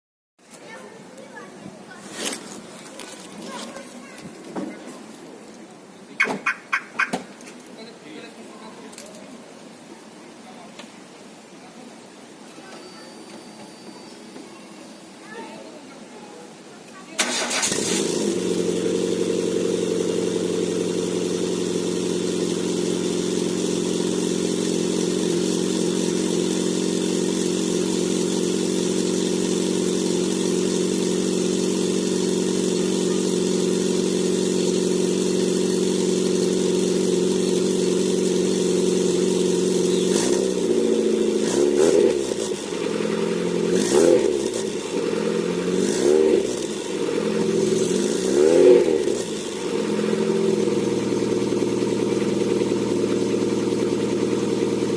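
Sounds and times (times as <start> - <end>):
car engine idling and revving: 17.2 - 54.9.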